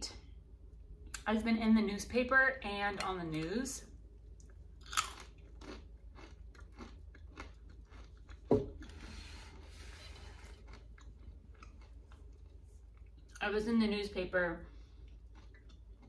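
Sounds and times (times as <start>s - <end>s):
crunching and chewing snack: 4.2s - 9.0s, 10.0s - 13.4s, 14.7s - 16.0s.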